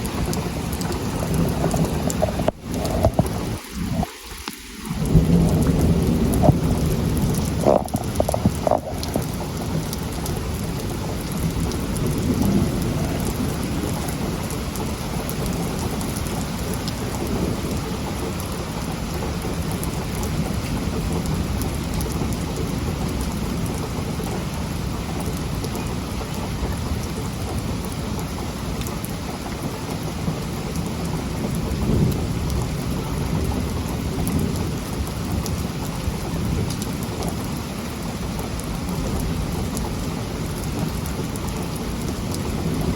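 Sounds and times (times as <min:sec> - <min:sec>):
thunder rumbling: 0:00.0 - 0:04.1, 0:04.8 - 0:27.9
heavy rain falling: 0:00.0 - 0:42.9.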